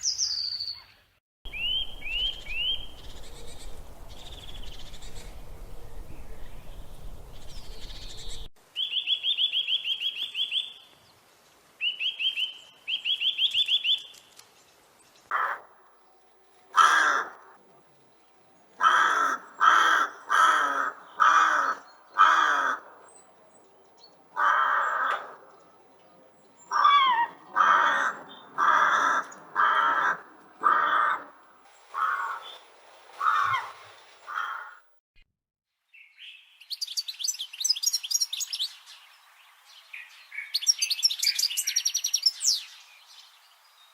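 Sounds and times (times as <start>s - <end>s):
crow cawing: 15.3s - 15.7s, 16.8s - 17.4s, 18.8s - 23.0s, 24.4s - 25.4s, 26.7s - 32.6s, 33.2s - 34.8s.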